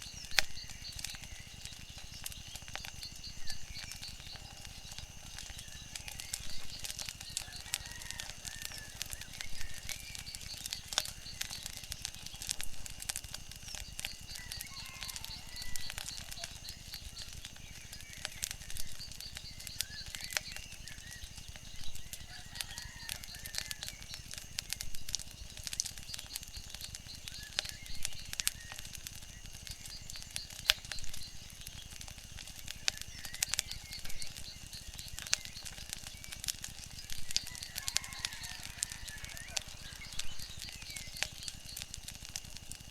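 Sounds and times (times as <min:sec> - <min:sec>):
wood fire crackling and popping: 0:00.0 - 0:42.9
faint bird calls: 0:14.0 - 0:24.4, 0:32.5 - 0:41.9.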